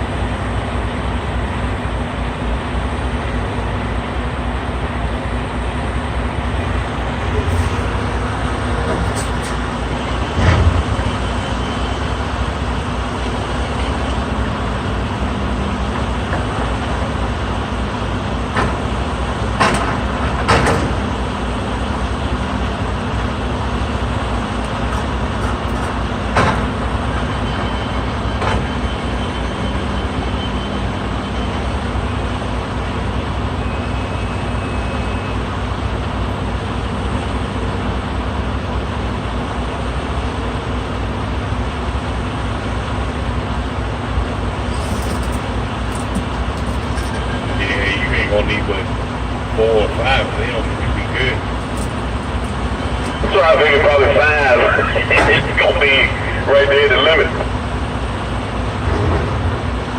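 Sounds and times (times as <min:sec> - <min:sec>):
diesel engines droning: 0:00.0 - 0:59.9
sharp metal knocks and clanks: 0:44.7 - 0:47.4.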